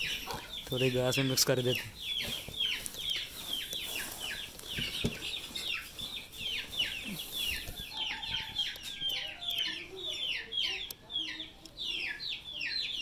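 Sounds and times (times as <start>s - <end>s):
small birds chirping: 0.0s - 13.0s
dry fodder rustling by hand: 0.8s - 8.6s.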